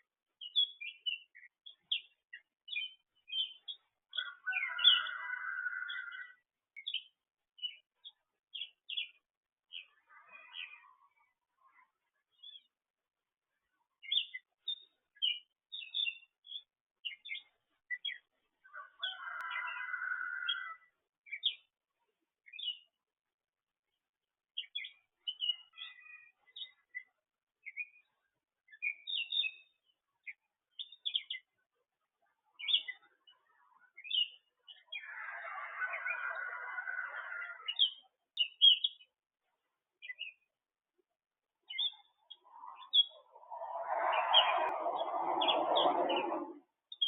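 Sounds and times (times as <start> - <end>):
birds chirping: 34.0 - 39.1, 41.6 - 47.0.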